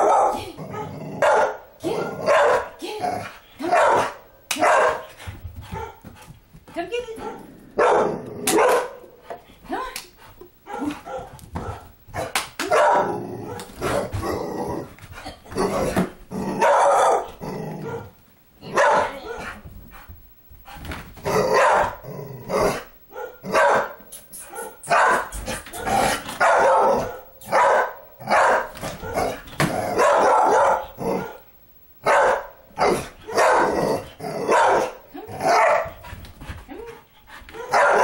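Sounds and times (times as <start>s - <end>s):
dog barking: 0.0s - 1.6s, 2.2s - 2.8s, 3.6s - 5.1s, 5.7s - 6.0s, 7.2s - 9.0s, 10.7s - 13.7s, 16.6s - 19.6s, 21.5s - 22.0s, 23.1s - 29.4s, 30.0s - 33.8s, 34.5s - 36.0s, 37.6s - 38.0s.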